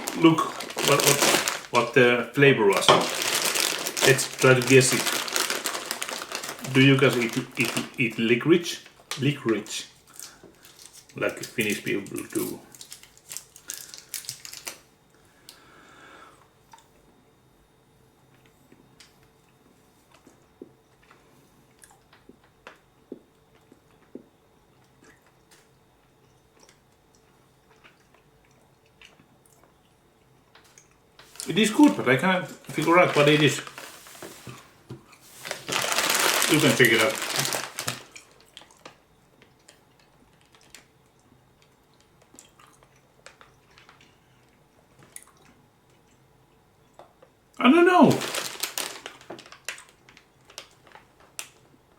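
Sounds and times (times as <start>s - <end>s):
person chewing candy: 0.0s - 1.9s, 2.8s - 8.1s, 10.1s - 14.8s, 18.3s - 31.6s, 35.1s - 47.3s, 48.1s - 51.7s
low steady hum: 0.0s - 51.9s.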